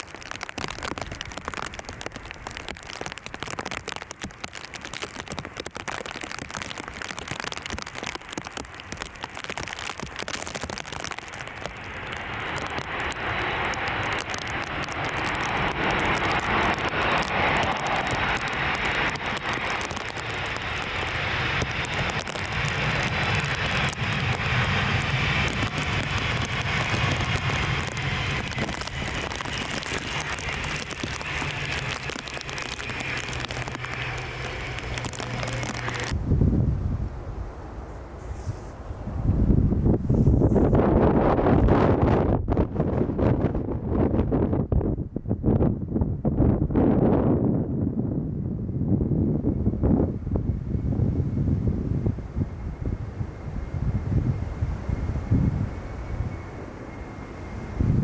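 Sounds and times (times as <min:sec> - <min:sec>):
rain pattering: 0:00.0 - 0:36.2, 0:52.4 - 0:58.0
jet airliner engines: 0:10.4 - 0:58.0.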